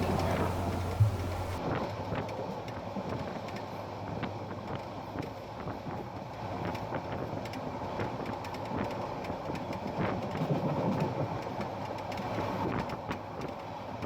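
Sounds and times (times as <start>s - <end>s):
train wheels rumbling on rail: 0.0s - 1.7s, 5.7s - 14.0s.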